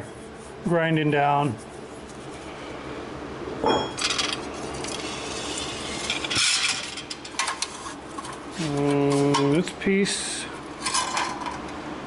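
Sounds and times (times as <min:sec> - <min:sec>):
metal scraping against metal: 0:03.7 - 0:09.4.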